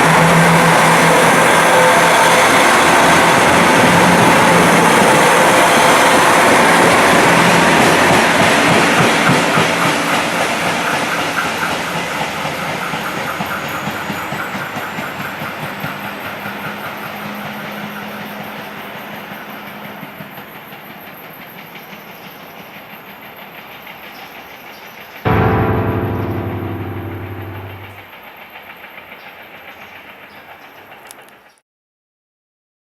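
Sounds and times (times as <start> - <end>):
diesel train pulling away: 0.0 - 20.7.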